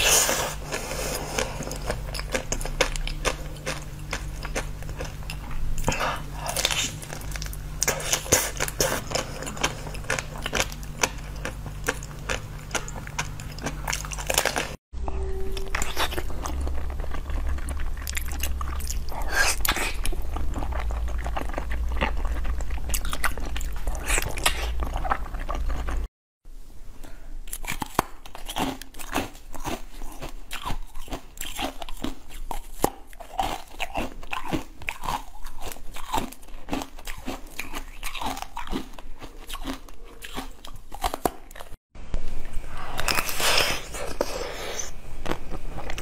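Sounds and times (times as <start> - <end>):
biting and chewing jelly sweets: 0.0 - 14.8, 15.5 - 26.1, 27.4 - 41.8, 42.8 - 46.0.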